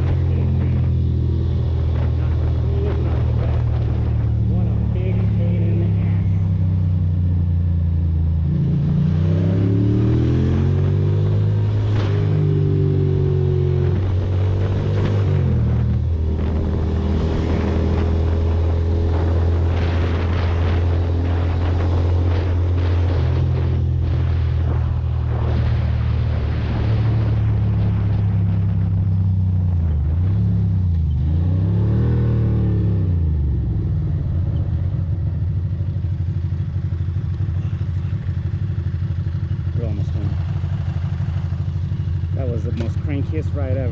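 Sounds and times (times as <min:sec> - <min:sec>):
wind noise: 0:00.0 - 0:07.1, 0:07.7 - 0:35.3.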